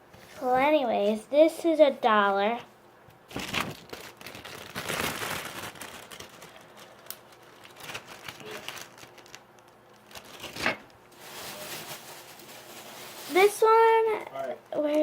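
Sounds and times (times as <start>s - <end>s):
plastic crinkling and rustling: 3.3s - 15.0s.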